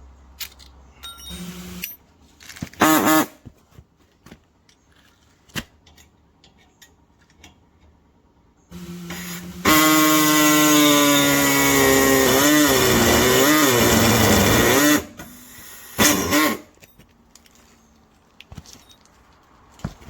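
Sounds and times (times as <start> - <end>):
air hacksaw cutting steel pipe: 9.0 - 16.7.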